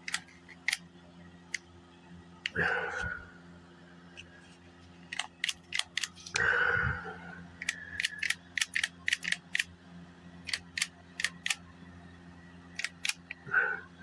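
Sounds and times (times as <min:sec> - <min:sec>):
sharp mechanical clicks: 0:00.0 - 0:00.9, 0:05.1 - 0:06.4, 0:07.6 - 0:09.8, 0:10.4 - 0:11.6, 0:12.8 - 0:13.4.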